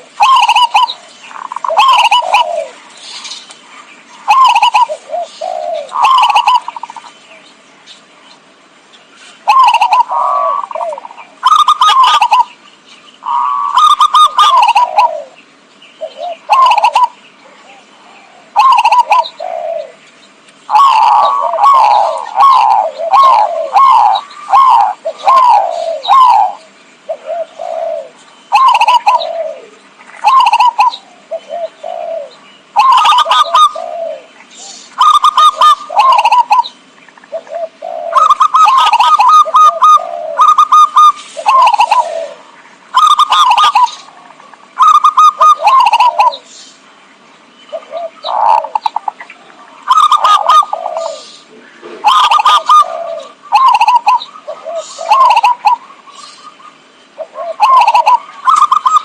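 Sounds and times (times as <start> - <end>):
dove cooing: 0.0 - 3.5, 4.2 - 7.2, 9.4 - 12.6, 13.2 - 15.4, 16.0 - 20.0, 20.7 - 46.6, 47.7 - 59.0.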